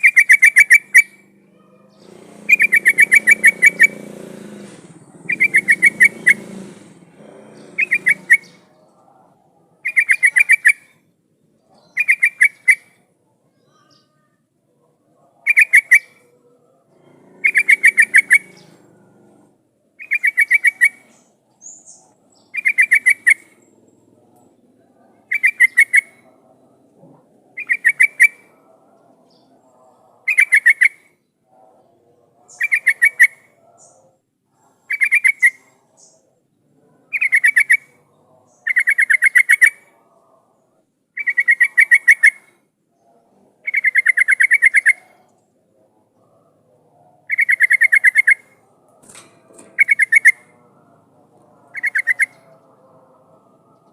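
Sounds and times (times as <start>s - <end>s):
bulbul chattering call: 0.0s - 8.8s, 9.8s - 11.0s, 11.8s - 13.0s, 15.4s - 16.3s, 17.0s - 18.8s, 20.0s - 23.7s, 25.2s - 26.3s, 27.5s - 28.6s, 30.2s - 31.1s, 32.5s - 34.0s, 34.9s - 36.2s, 37.1s - 39.9s, 41.2s - 42.6s, 43.6s - 45.4s, 47.2s - 50.6s, 51.3s - 52.8s.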